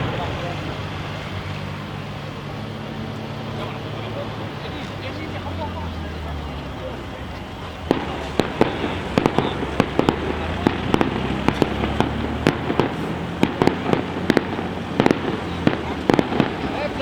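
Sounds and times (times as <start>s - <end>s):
low rumble of explosions: 0.0s - 17.0s
firework shell bursts and bangs: 7.7s - 17.0s.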